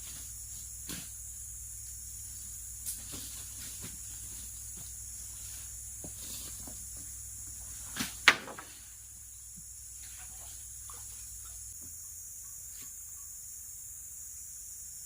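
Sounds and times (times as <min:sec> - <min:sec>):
high-pitched insect chorus: 0:00.0 - 0:15.0
knocks of things being handled: 0:08.2 - 0:08.8.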